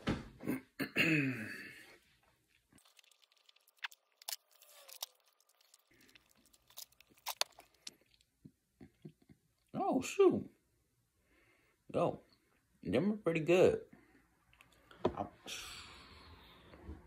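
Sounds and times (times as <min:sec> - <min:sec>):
person chewing candy: 0:02.7 - 0:09.3
mouth clicks and crackles: 0:02.7 - 0:09.7.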